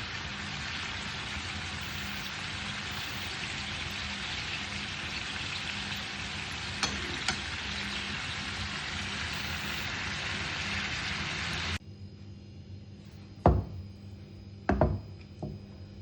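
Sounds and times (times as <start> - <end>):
food sizzling in hot pan: 0.0 - 11.8.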